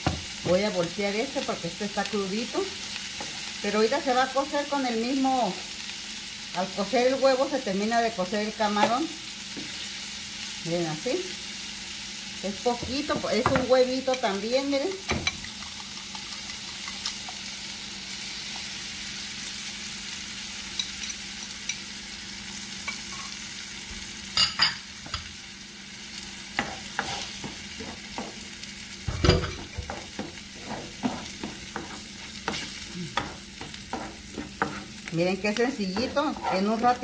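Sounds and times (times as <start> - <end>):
shrimp and egg sizzling in oil: 0.0 - 37.0
spatula scraping and tapping pan: 26.6 - 35.1, 35.8 - 37.0.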